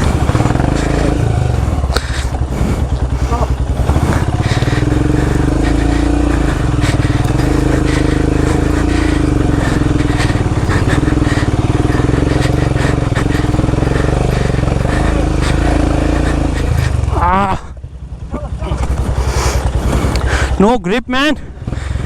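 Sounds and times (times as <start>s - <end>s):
knocks and clatter over rocks: 0.0s - 17.1s
motorcycle engine under load: 0.0s - 20.7s, 21.4s - 22.0s.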